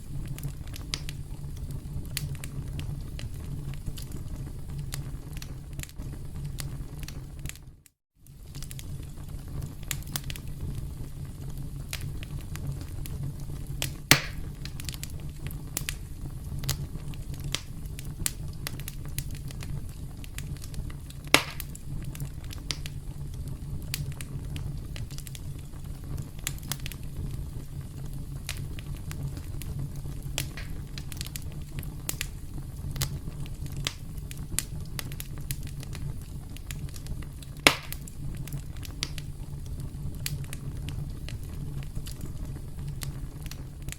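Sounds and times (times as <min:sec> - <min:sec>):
burning wood low rumble: 0:00.0 - 0:43.9
campfire crackling: 0:00.0 - 0:43.9
wood snapping and popping: 0:13.8 - 0:15.0, 0:21.2 - 0:21.8, 0:30.4 - 0:31.4, 0:36.6 - 0:39.3.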